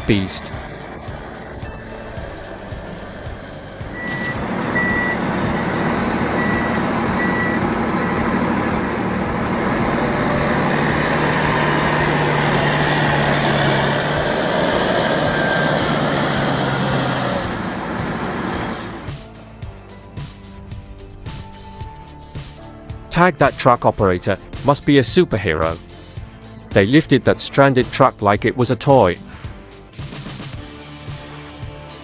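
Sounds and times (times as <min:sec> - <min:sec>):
reversing alarm beeping: 0:00.0 - 0:19.1
heavy truck engine running: 0:00.0 - 0:24.6.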